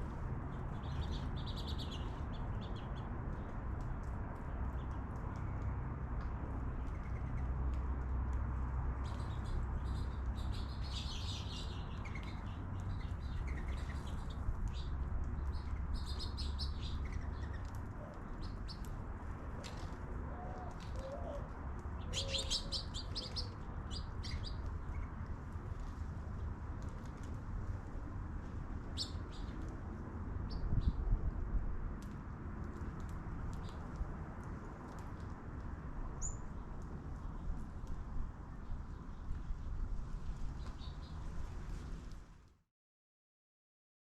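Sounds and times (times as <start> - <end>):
small birds chirping: 0.6 - 3.5, 9.0 - 18.9, 20.6 - 25.3, 36.2 - 37.5.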